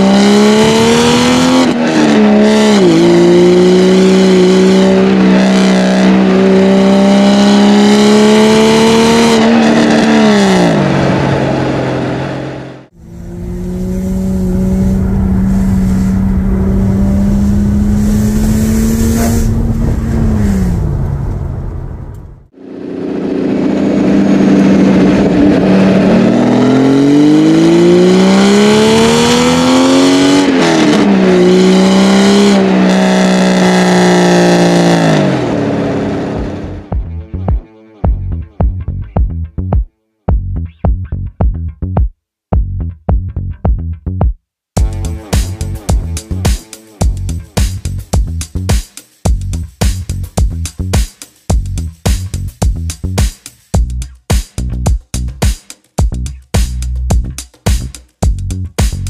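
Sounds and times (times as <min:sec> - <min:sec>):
sports car engine revving: 0:00.0 - 0:36.9.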